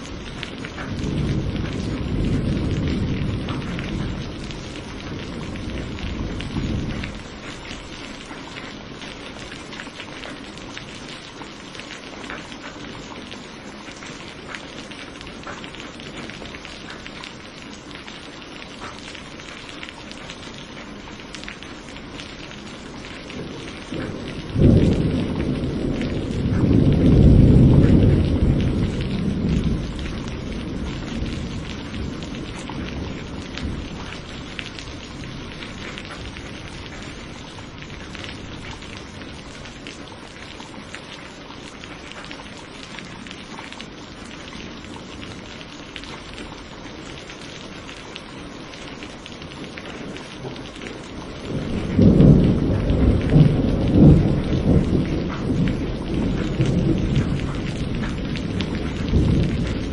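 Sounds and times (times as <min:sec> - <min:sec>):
thunder rumble: 0:00.0 - 0:08.0, 0:23.0 - 0:40.4, 0:49.4 - 0:59.9
steady rain: 0:00.0 - 0:59.9.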